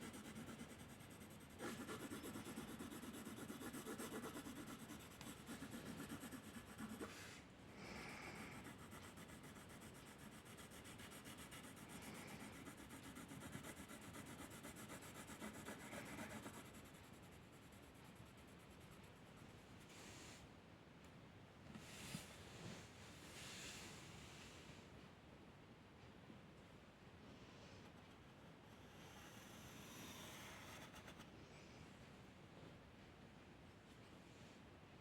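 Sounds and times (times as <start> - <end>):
pencil rubbing on paper: 0.0 - 7.3, 8.4 - 19.5.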